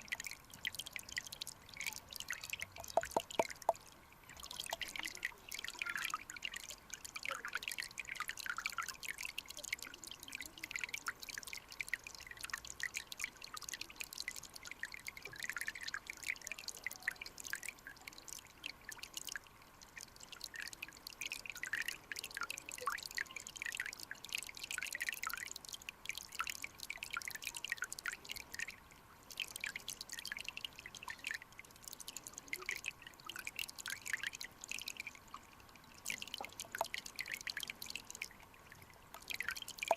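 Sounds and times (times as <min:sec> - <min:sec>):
stream water bubbling and trickling: 0:00.0 - 0:39.9.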